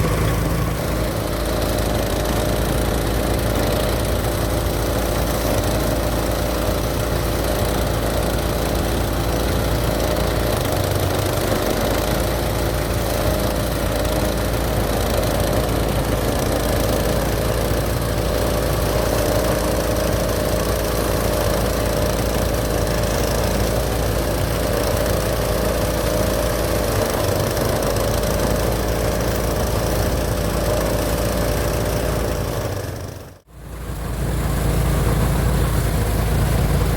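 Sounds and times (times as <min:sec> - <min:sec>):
thresher engine running: 0:00.0 - 0:36.9.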